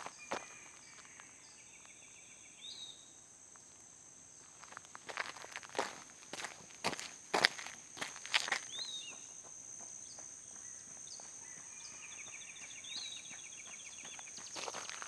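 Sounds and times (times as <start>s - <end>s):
footsteps: 4.5s - 11.7s, 12.6s - 15.0s.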